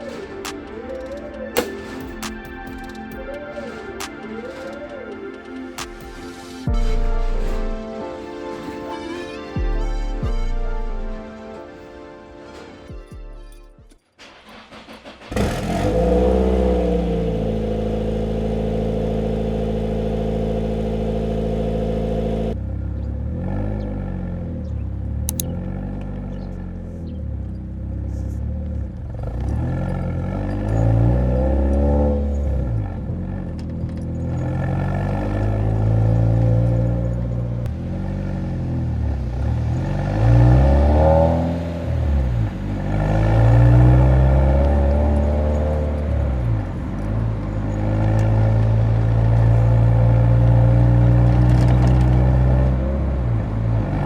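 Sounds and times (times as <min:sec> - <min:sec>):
car engine revving: 0:14.2 - 0:54.0.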